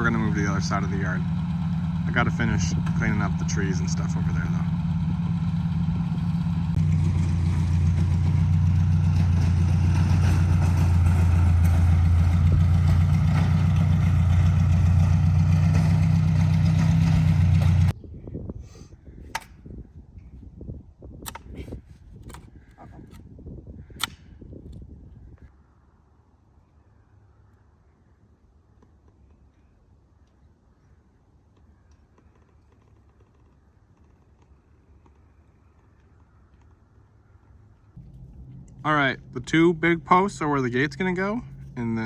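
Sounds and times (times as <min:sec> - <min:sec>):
rototiller working soil: 0:00.0 - 0:17.9
tractor engine running: 0:00.0 - 0:17.9, 0:37.9 - 0:42.0
faint clicks and knocks: 0:31.5 - 0:36.8.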